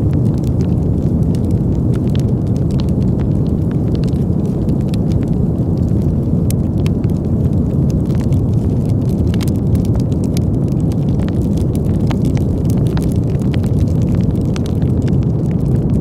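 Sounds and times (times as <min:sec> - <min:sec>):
campfire crackling and popping: 0:00.0 - 0:16.0
low wind rumble: 0:00.0 - 0:16.0.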